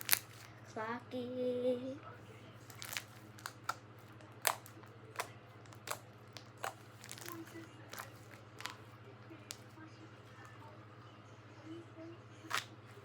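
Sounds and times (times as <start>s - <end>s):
faint steady hum: 0.0s - 13.0s
slime clicking and popping: 2.7s - 3.8s, 4.4s - 8.8s, 12.5s - 12.7s.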